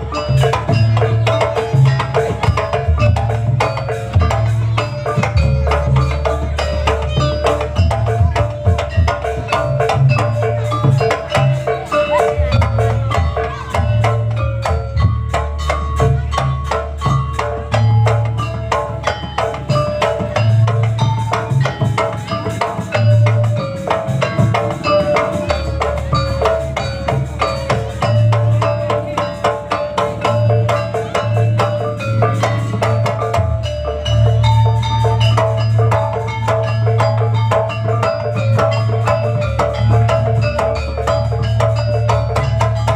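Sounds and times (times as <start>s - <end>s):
gamelan metal percussion: 0.0s - 42.9s
low drum beats: 0.0s - 42.9s.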